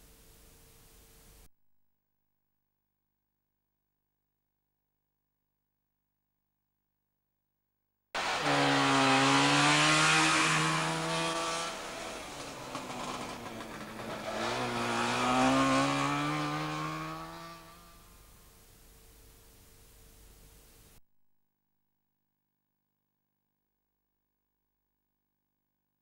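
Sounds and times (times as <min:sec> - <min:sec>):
two-stroke car engine revving: 0:08.2 - 0:18.0.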